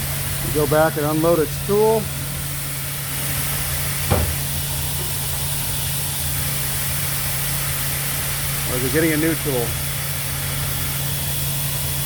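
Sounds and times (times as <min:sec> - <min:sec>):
vacuum and dust extraction hum: 0:00.0 - 0:12.0
sharp clunk of router tool change: 0:04.1 - 0:04.5.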